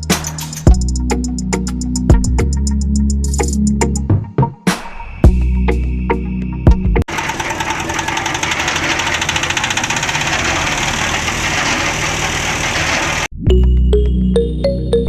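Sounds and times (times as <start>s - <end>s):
small machine clattering: 7.1s - 13.3s.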